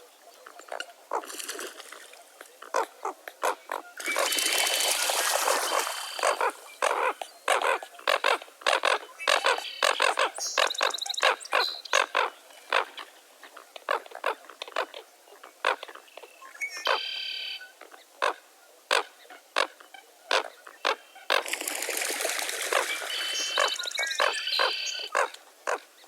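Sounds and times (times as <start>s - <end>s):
birds calling harshly: 2.7s - 13.1s, 18.2s - 25.8s.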